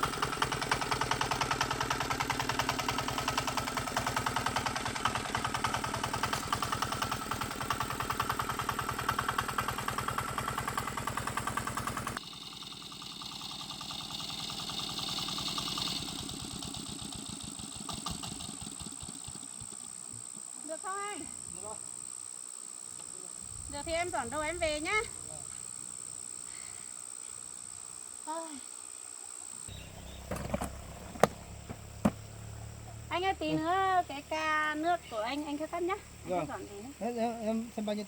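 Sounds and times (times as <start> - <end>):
tractor engine running: 0.0 - 20.5, 29.7 - 36.2.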